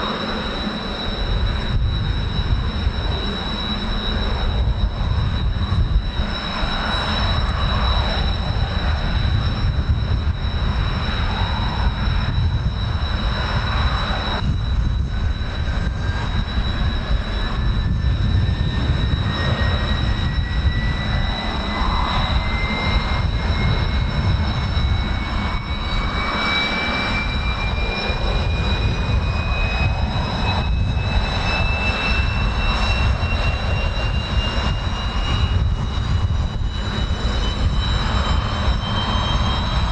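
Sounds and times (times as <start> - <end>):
jet engines whining: 0.0 - 39.9
whine rising in pitch: 0.0 - 39.9
wind buffeting microphone: 0.0 - 39.9.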